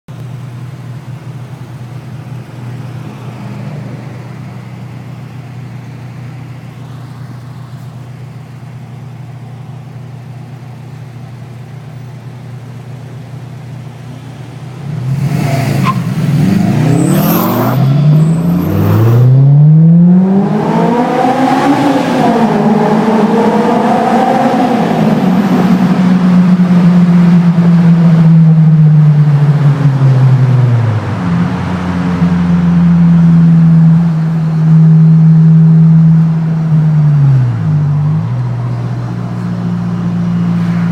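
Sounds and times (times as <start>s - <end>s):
car engine accelerating: 13.9s - 40.9s.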